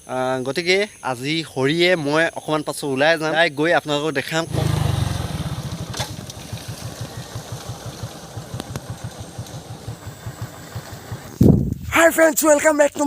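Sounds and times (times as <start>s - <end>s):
motorcycle engine idling: 4.5s - 11.4s.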